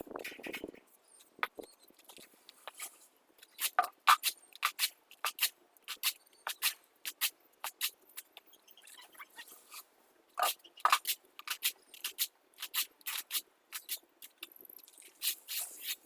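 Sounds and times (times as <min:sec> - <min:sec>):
hand tools scraping wet concrete: 0:15.1 - 0:16.0.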